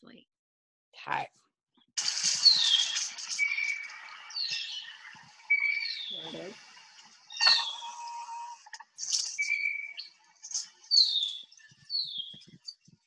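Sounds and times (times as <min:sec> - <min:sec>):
downward slurring bird whistle: 0:02.0 - 0:06.6, 0:07.3 - 0:12.5
lower bird call: 0:02.0 - 0:06.6, 0:07.3 - 0:12.5
short bird chirps: 0:02.0 - 0:12.8.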